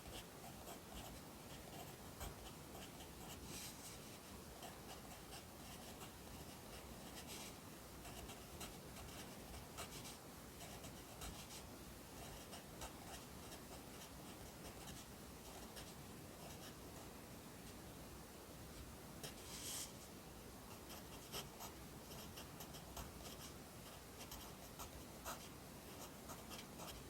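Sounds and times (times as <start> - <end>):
pencil scratching on paper: 0.0 - 11.6, 20.7 - 27.0.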